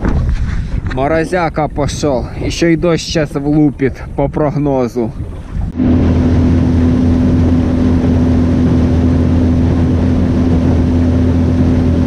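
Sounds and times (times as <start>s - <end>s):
wind and water noise: 0.0s - 12.0s
motorboat engine running: 5.2s - 12.0s.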